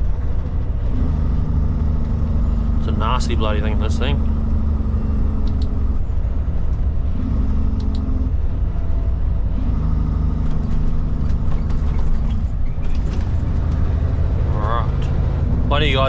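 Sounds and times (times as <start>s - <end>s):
diesel engine droning: 0.0s - 16.0s
cab rattles and clicks: 10.4s - 14.0s.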